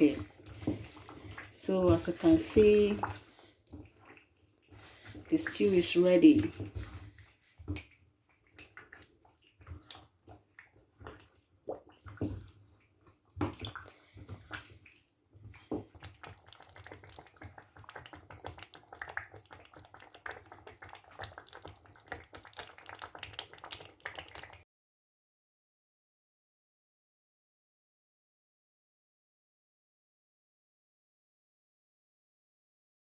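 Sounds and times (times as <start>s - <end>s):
stew bubbling with wet pops: 0.0s - 24.6s.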